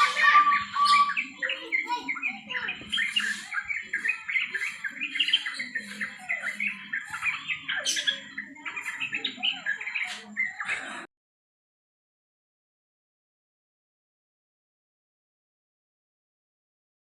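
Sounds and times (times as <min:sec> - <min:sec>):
bird chattering: 0:00.0 - 0:10.7.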